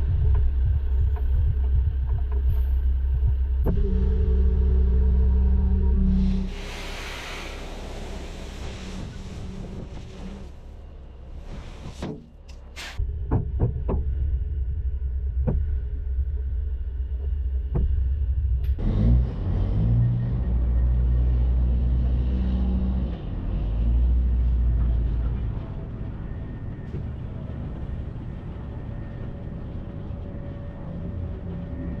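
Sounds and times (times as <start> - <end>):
diesel truck engine pulling hard: 18.8 - 26.5.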